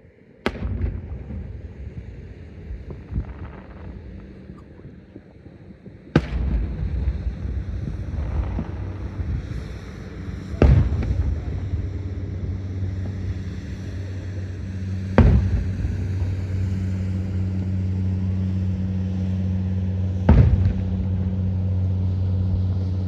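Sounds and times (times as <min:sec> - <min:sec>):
low rolling rumble: 0:00.4 - 0:23.0
firework bangs: 0:00.5 - 0:02.0, 0:06.1 - 0:19.1, 0:20.2 - 0:21.9.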